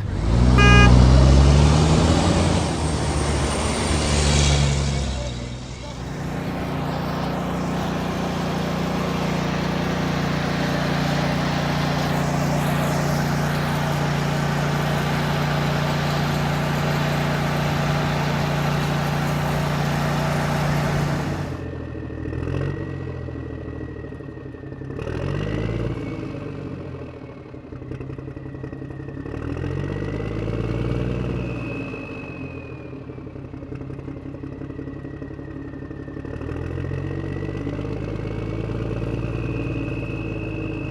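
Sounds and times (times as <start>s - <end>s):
engine revving: 0.0s - 23.1s, 25.0s - 26.8s
construction machinery engine: 0.0s - 40.9s.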